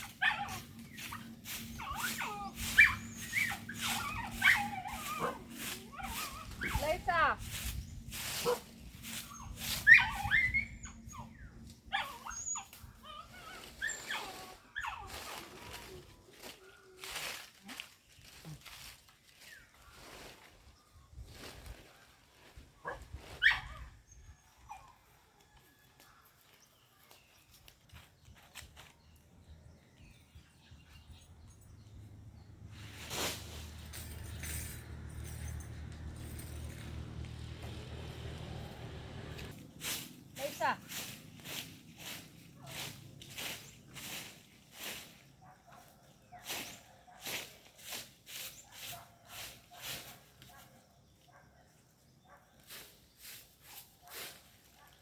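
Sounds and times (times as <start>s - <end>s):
dog whining and whimpering: 1.7s - 5.4s, 9.4s - 15.2s.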